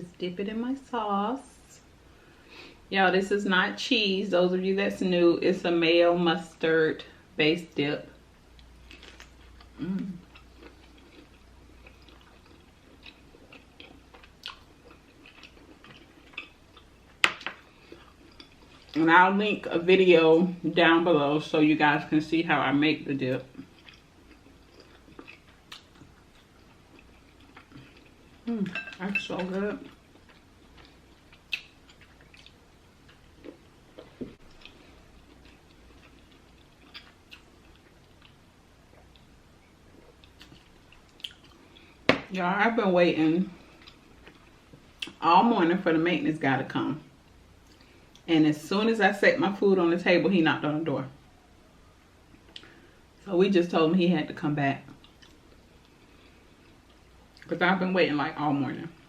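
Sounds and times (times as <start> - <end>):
wet chewing sounds: 8.6 - 19.0, 23.5 - 28.8, 29.8 - 39.3, 39.9 - 42.0, 54.9 - 57.5
mouth clicks and smacks chewing: 30.2 - 39.3, 54.9 - 55.9.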